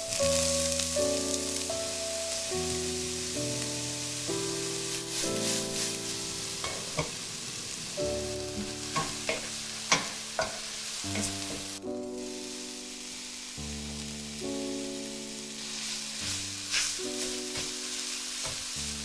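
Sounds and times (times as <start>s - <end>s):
soft background music: 0.0s - 19.0s
steak sizzling in a frying pan: 0.0s - 19.0s
utensil tapping against pan: 8.6s - 11.7s.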